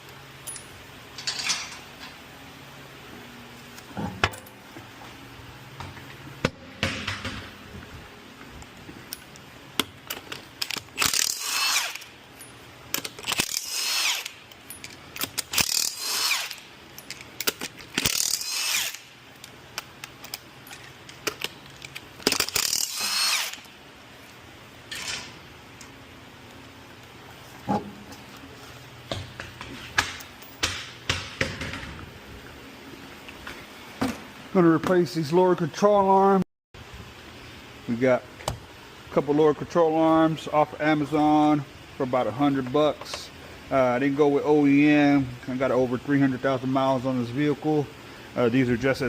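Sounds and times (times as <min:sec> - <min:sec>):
tools clicking and clinking: 0:00.4 - 0:02.2, 0:09.1 - 0:23.7
power tool whining: 0:18.0 - 0:19.1, 0:22.5 - 0:23.7.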